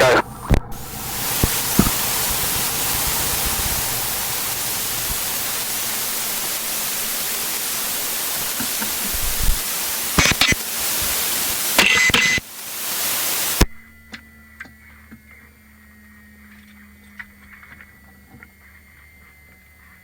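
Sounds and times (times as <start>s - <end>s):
cockpit hiss: 0.0s - 13.9s.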